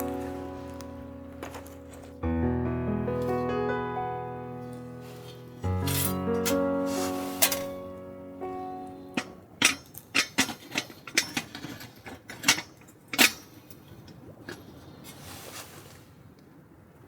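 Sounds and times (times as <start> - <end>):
faint rustling: 0.0 - 9.9, 13.9 - 16.2.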